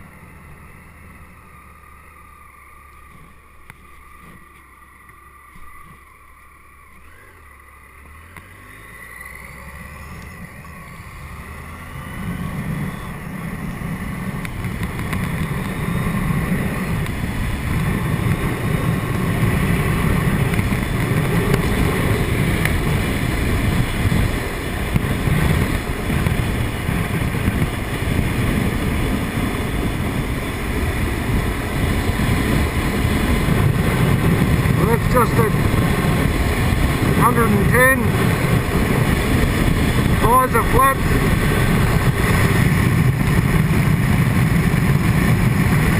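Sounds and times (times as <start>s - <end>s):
motorcycle engine: 0.0s - 45.9s
wind rushing around helmet: 8.5s - 45.9s.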